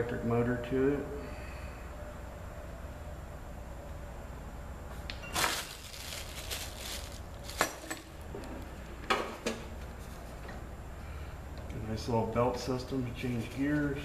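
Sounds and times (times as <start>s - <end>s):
scraping rustle: 5.3s - 8.0s
metal parts clattering: 5.3s - 8.2s.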